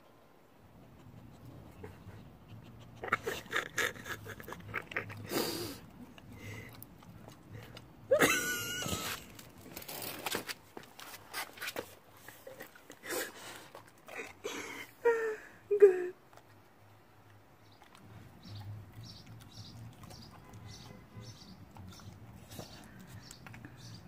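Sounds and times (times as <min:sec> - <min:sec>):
dog chewing and crunching food: 0:02.6 - 0:08.1, 0:08.8 - 0:14.6, 0:16.2 - 0:24.0.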